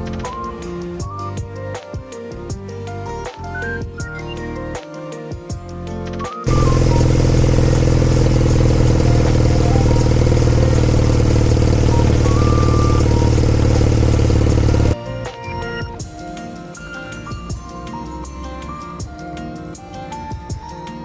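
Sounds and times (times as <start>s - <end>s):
motorcycle engine deep exhaust note: 6.5s - 15.0s.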